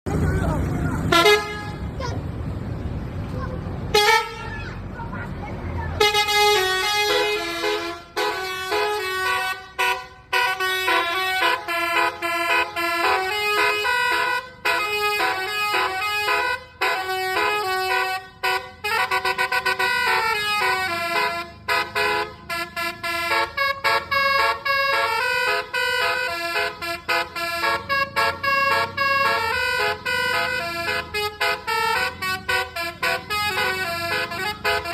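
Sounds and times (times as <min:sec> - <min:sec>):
bus musical horn melody: 0:01.0 - 0:02.0, 0:03.9 - 0:04.8, 0:06.0 - 0:34.9.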